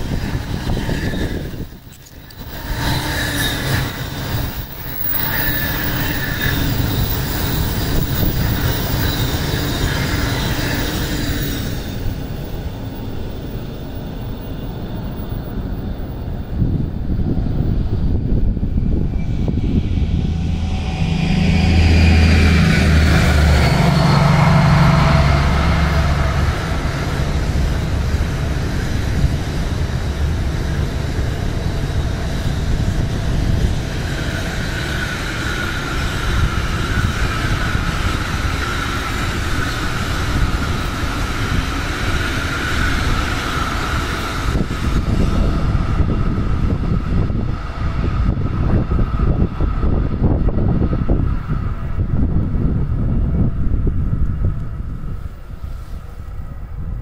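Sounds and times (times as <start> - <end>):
diesel locomotive engine passing: 0.0 - 57.0
train wagons rumbling and clattering: 0.0 - 57.0
high whine: 17.5 - 57.0.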